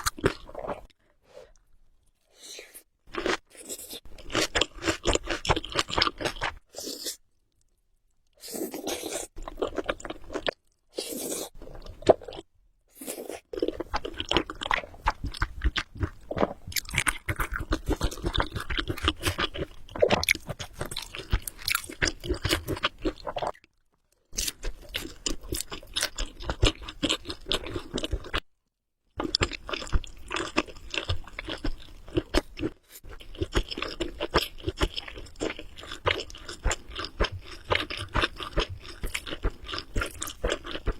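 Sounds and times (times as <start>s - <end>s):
chewing noodles: 13.0s - 23.6s, 29.2s - 40.9s.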